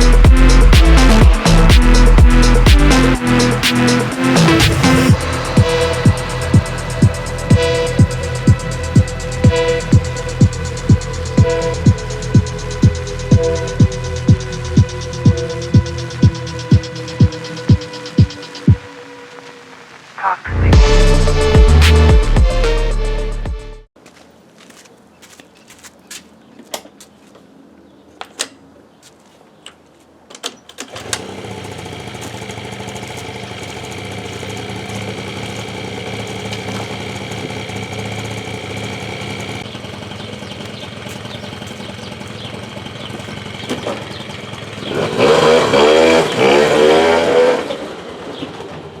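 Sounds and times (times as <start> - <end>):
scooter two-stroke engine running: 0.0 - 18.9, 30.9 - 49.0.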